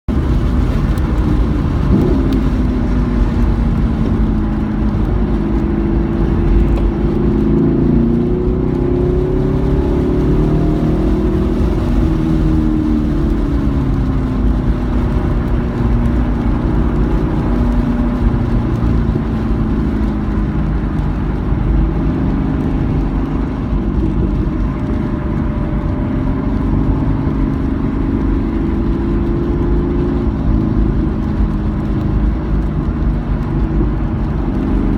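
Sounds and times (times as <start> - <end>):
racing car engine accelerating: 0.6 - 20.2.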